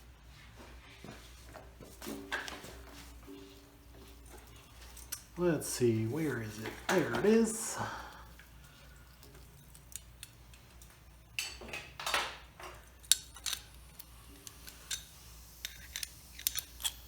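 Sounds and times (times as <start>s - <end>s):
air hissing: 3.2s - 9.8s, 13.1s - 17.0s
metallic clicks and rattles: 8.3s - 17.0s.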